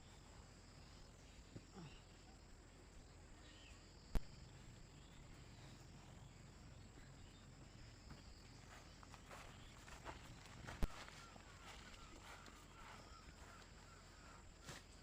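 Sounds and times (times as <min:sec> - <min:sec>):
crickets droning: 0:00.0 - 0:15.0.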